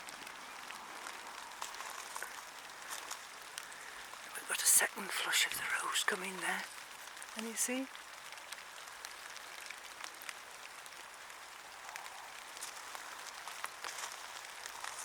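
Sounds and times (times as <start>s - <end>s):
rain hiss: 0.0s - 15.0s
raindrop ticks: 0.0s - 15.0s.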